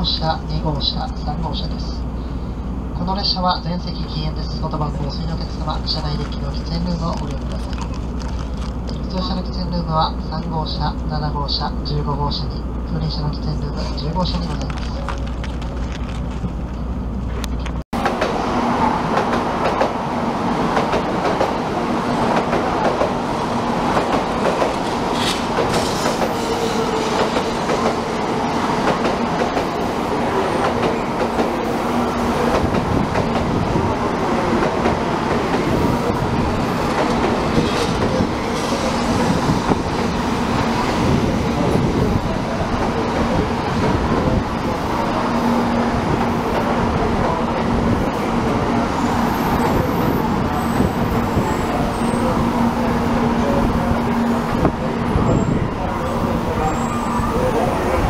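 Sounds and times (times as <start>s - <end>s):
train rushing past on tracks: 12.4s - 58.0s.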